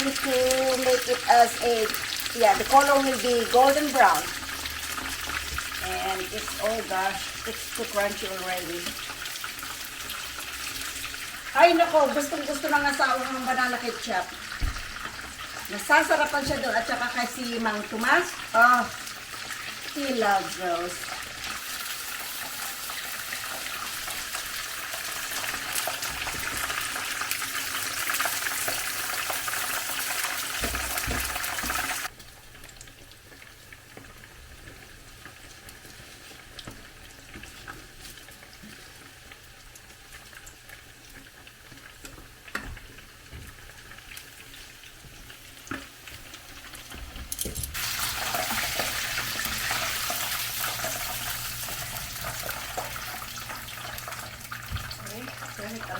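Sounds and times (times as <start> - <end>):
chicken deep frying in oil: 0.0 - 55.9.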